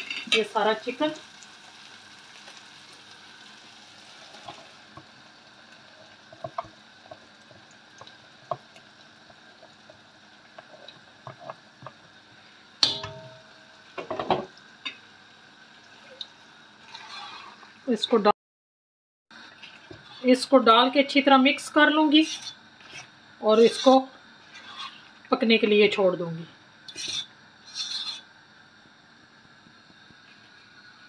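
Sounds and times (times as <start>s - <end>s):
onion sizzling in a pan: 0.0s - 18.0s, 19.4s - 31.0s
knock ringing against pan: 12.8s - 13.5s.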